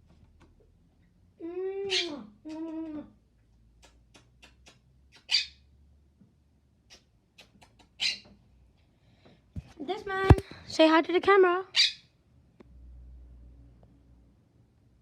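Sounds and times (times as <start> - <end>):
parrot calling: 1.8 - 3.2, 4.4 - 5.7, 6.9 - 8.4, 11.7 - 12.1.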